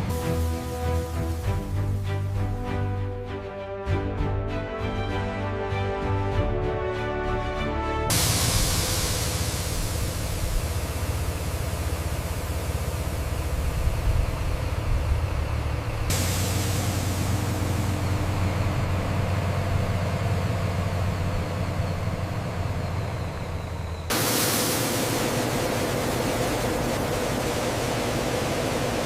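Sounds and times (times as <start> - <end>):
heavy machinery rumbling: 0.0 - 3.3, 8.1 - 29.0.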